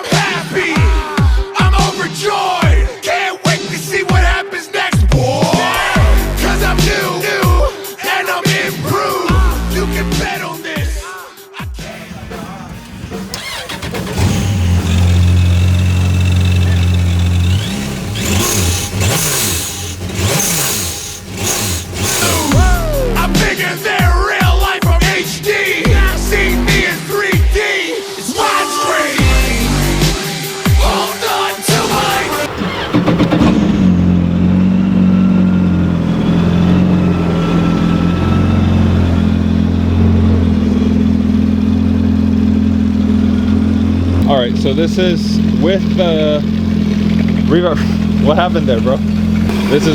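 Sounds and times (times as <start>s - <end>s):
jet ski engine revving: 5.6s - 7.4s, 9.3s - 10.3s, 12.7s - 23.9s, 25.1s - 49.9s.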